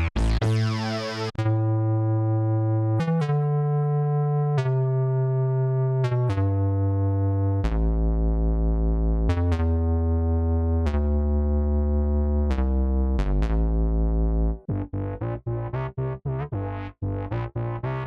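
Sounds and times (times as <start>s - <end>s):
synthesizer chords over deep bass: 0.0s - 18.0s.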